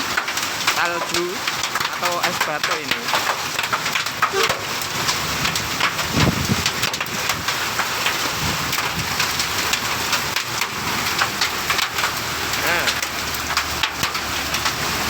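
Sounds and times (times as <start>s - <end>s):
hailstones clattering: 0.0s - 15.0s
rain hiss: 0.0s - 15.0s.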